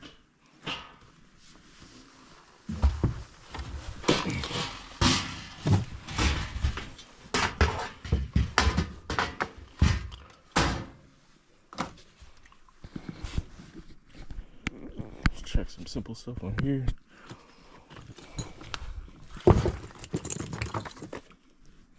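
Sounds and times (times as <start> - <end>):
objects knocking and clattering: 2.7 - 11.0, 18.0 - 21.5.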